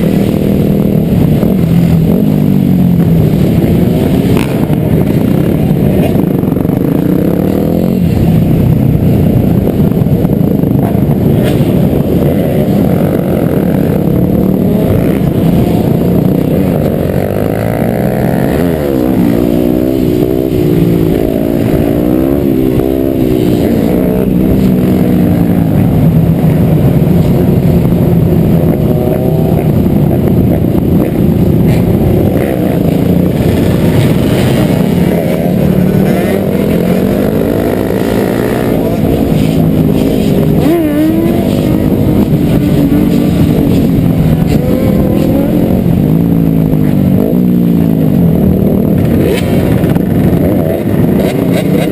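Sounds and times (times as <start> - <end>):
dirt bike engines revving: 0.0 - 51.9.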